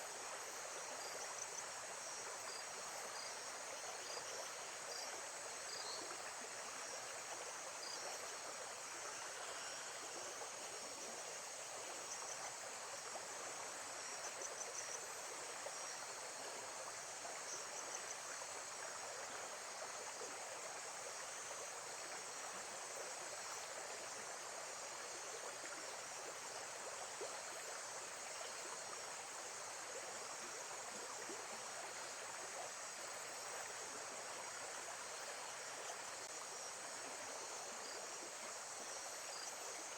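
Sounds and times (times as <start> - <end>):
faint insect chirps: 0.0 - 39.9.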